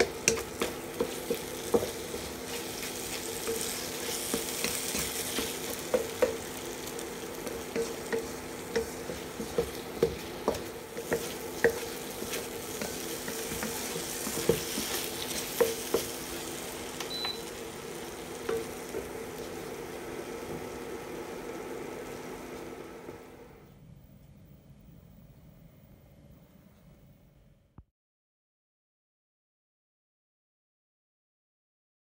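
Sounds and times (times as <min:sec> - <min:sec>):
spatula knocking against pan: 0:00.0 - 0:02.5, 0:03.4 - 0:06.6, 0:07.4 - 0:16.5, 0:18.4 - 0:19.2
food sizzling in a wok: 0:00.0 - 0:23.6.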